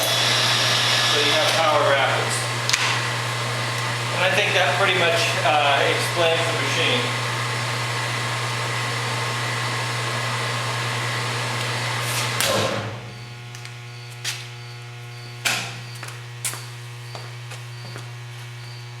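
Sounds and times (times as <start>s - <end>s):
engine lathe whirring: 0.0s - 13.8s
steady low hum: 10.8s - 19.0s.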